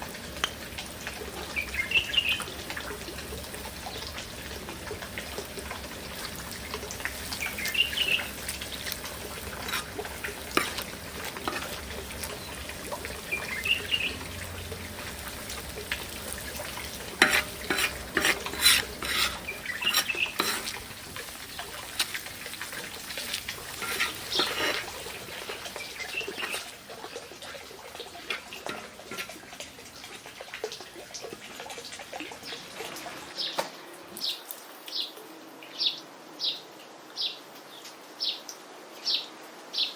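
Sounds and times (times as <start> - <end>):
utensil clinking and scraping pot: 6.7 - 13.6, 15.2 - 27.0, 28.0 - 30.3.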